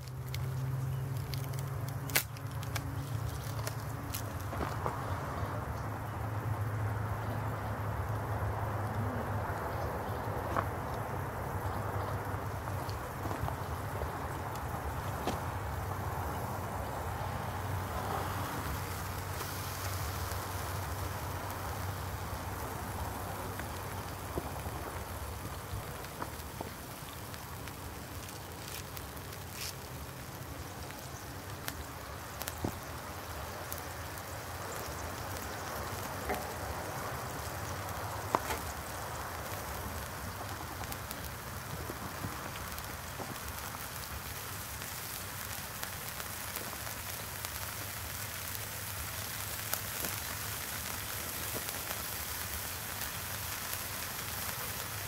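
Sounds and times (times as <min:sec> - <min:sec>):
pops and crackles: 0:00.0 - 0:06.2, 0:09.4 - 0:55.0
food sizzling in a pan: 0:16.8 - 0:25.5.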